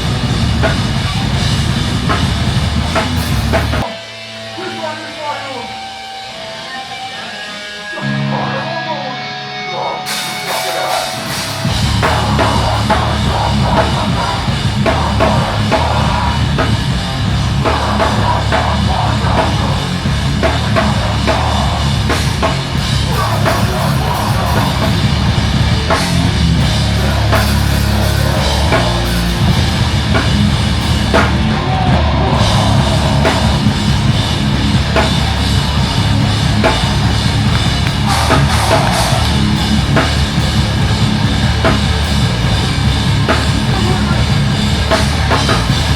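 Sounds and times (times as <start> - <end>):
drum kit pounding: 0.0 - 6.3, 10.1 - 45.9
heavy rock music: 0.0 - 45.9.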